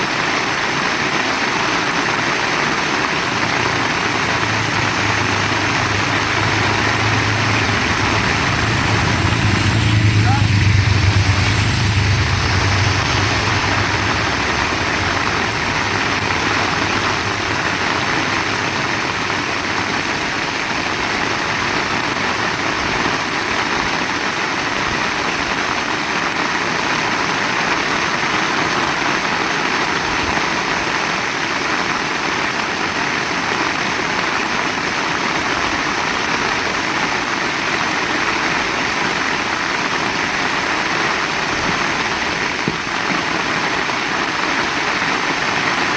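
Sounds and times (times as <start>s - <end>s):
heavy rain: 0.0s - 45.9s
low engine-like hum: 2.9s - 22.5s.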